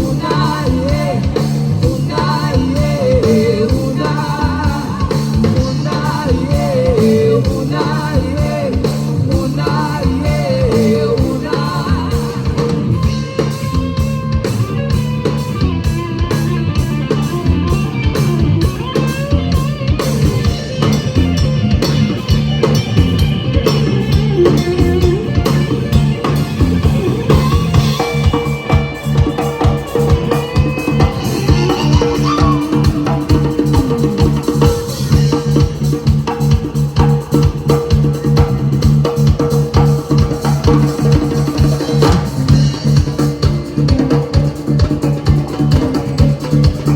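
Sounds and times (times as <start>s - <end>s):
person singing: 0.0s - 13.5s, 24.1s - 35.7s
band music with drums and guitar: 0.0s - 46.9s.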